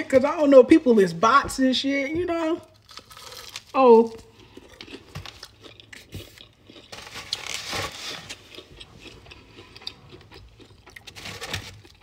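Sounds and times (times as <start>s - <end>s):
chewing crispy fried chicken: 2.8s - 12.0s.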